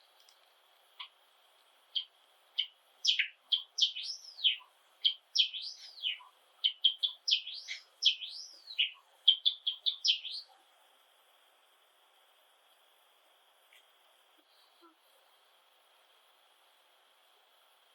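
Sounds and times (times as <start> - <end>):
sparrow singing clicks and whistles: 2.0 - 10.5.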